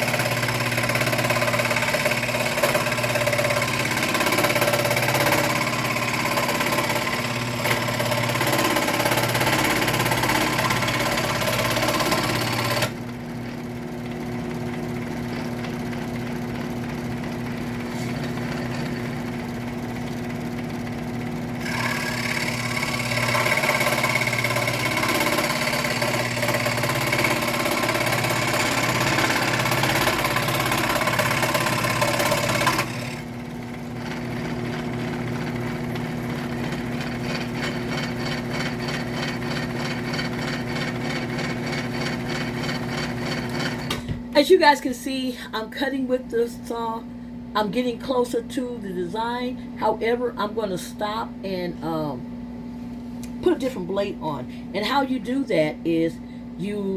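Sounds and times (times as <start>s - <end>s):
saw blade cutting wood: 0.0s - 13.0s, 17.7s - 19.3s, 21.6s - 33.2s, 34.1s - 44.0s
scroll saw motor humming: 0.0s - 44.2s.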